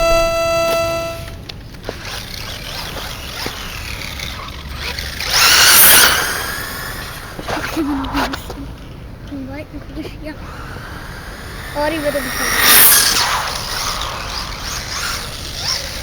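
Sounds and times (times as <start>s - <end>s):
held electronic tone: 0.0s - 1.4s
rc truck motor whine: 0.0s - 9.0s, 10.3s - 16.0s
tyre noise: 0.0s - 16.0s.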